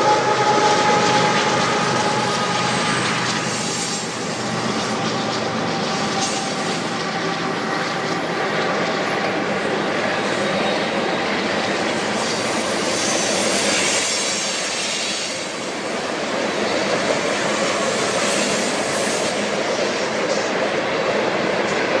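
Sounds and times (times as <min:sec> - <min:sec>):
high wheel squeal: 0:00.0 - 0:04.9, 0:10.2 - 0:15.7
freight train wheels clattering: 0:00.0 - 0:22.0.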